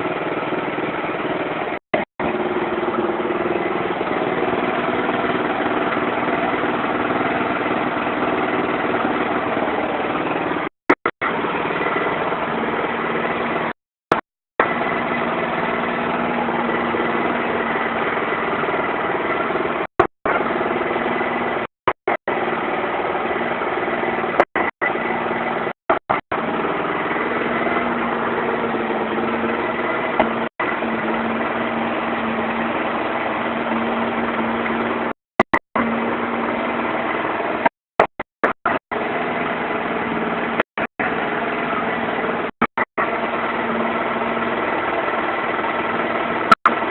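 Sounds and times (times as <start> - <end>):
motorcycle engine idling: 0.0 - 10.7, 11.3 - 13.8, 14.6 - 21.6, 26.4 - 35.2.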